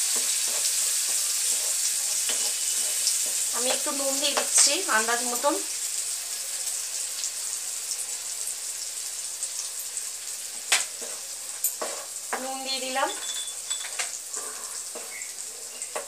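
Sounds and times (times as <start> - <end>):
wooden spatula scraping pan: 0.0 - 4.7, 11.0 - 12.2, 14.3 - 16.0
paste sizzling in hot oil: 0.0 - 16.0.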